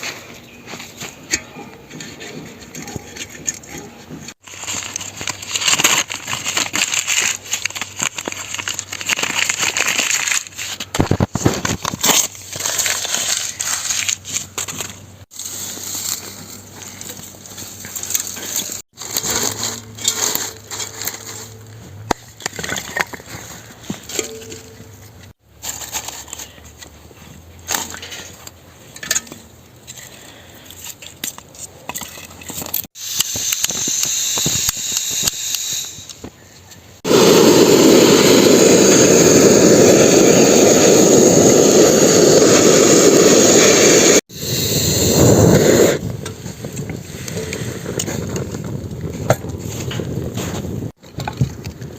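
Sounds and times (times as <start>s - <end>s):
loud steady hiss: 37.1s - 46.0s.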